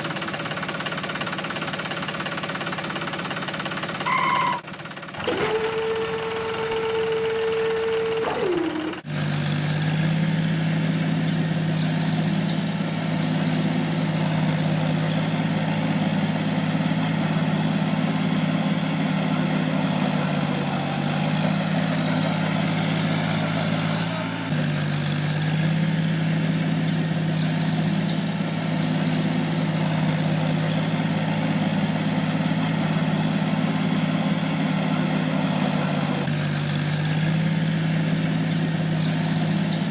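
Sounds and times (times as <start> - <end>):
mini tractor engine drone: 0.0 - 39.9
higher motor hum: 5.2 - 9.2.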